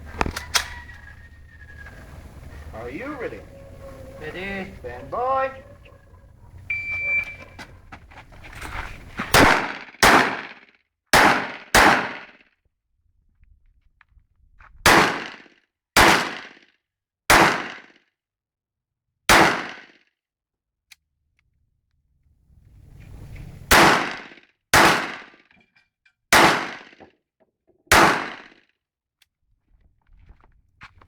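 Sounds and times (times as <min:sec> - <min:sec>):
pistol shots with echo: 0:09.4 - 0:10.6, 0:11.2 - 0:12.3, 0:14.9 - 0:15.4, 0:16.0 - 0:16.6, 0:17.3 - 0:17.8, 0:19.3 - 0:19.9, 0:23.7 - 0:25.3, 0:26.4 - 0:27.0, 0:27.9 - 0:28.6.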